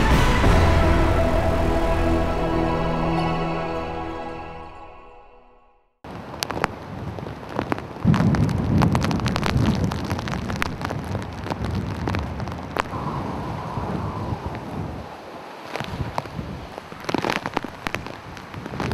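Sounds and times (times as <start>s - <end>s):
heavy rain falling: 0.0s - 3.5s
wind buffeting microphone: 11.1s - 17.2s.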